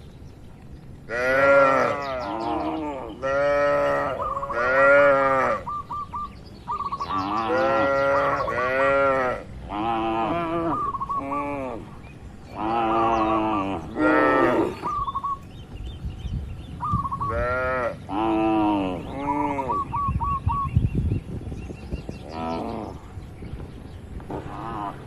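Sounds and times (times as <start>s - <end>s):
cattle mooing: 1.1s - 5.7s, 7.1s - 11.9s, 12.5s - 14.9s, 24.4s - 25.0s.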